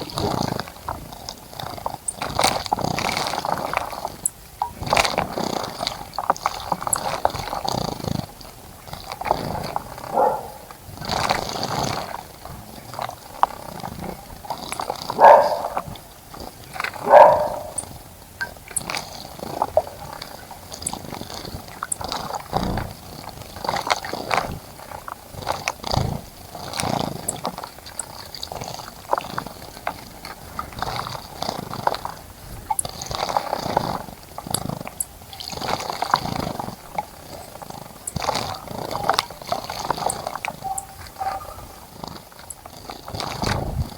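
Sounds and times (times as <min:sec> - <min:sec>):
birds splashing in bird bath: 0:00.0 - 0:43.9.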